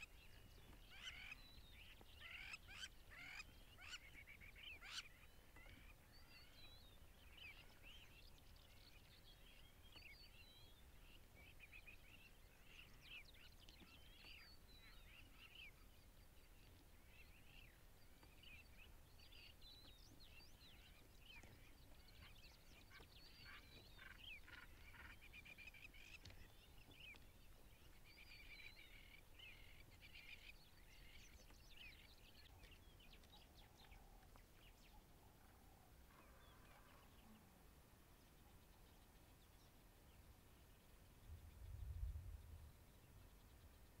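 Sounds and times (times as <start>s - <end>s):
faint birdsong: 0.0s - 44.0s
low steady rumble: 41.2s - 43.8s.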